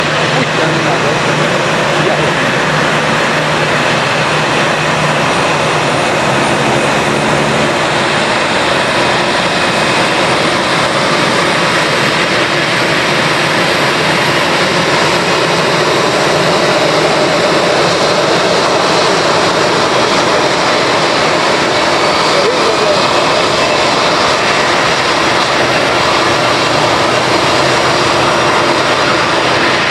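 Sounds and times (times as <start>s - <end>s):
jet engines roaring: 0.0s - 29.9s.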